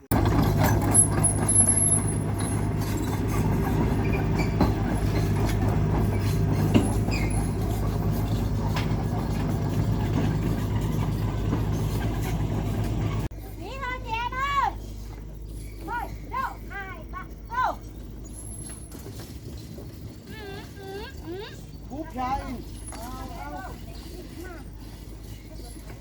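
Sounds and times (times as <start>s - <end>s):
knocks and clatter: 0.0s - 13.3s.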